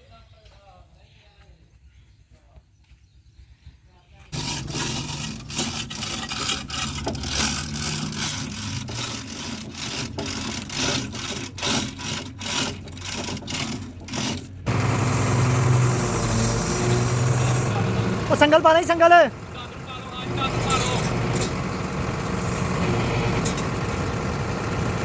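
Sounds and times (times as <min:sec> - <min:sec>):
rough scraping strokes: 0:04.3 - 0:14.8
low engine-like hum: 0:13.7 - 0:25.0.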